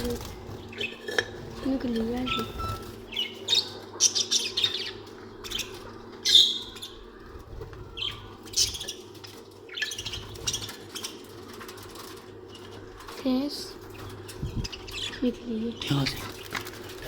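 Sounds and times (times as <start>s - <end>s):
budgerigars chirping: 0.0s - 7.1s, 7.9s - 11.4s, 13.9s - 16.4s.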